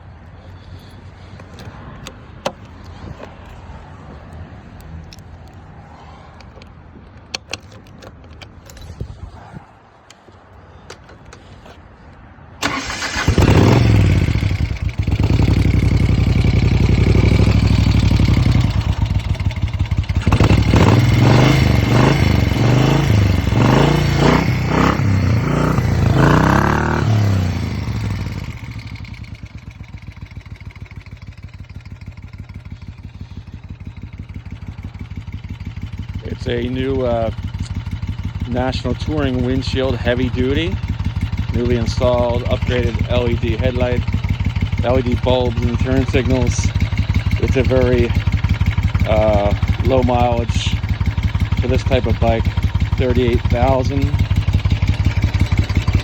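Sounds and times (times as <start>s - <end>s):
motorcycle engine revving and idling: 0.0s - 9.4s, 12.6s - 56.0s
starter clicks: 0.2s - 9.2s, 10.0s - 14.2s.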